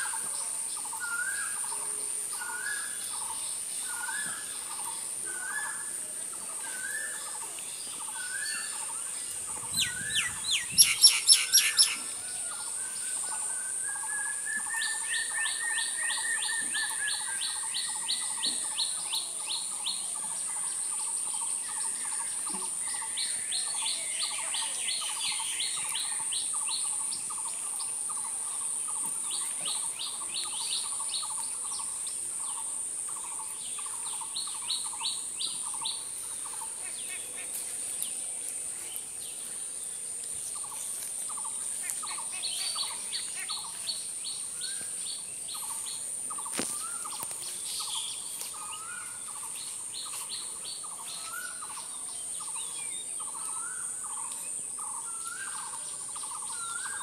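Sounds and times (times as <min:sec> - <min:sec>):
high-pitched hiss: 0:00.0 - 0:57.0
songbirds singing: 0:00.0 - 0:57.0
pulsing bird chatter: 0:08.0 - 0:12.1.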